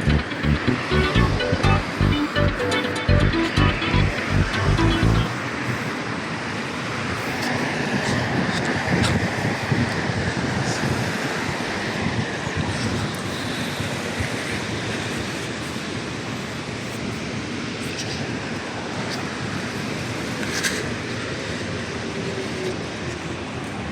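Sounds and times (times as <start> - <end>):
car road and wind noise: 5.1 - 16.8.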